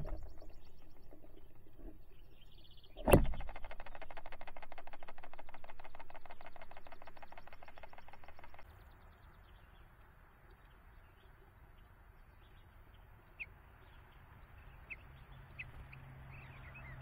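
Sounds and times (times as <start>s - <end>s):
bird tapping rapidly: 0.0s - 1.8s, 2.9s - 8.7s.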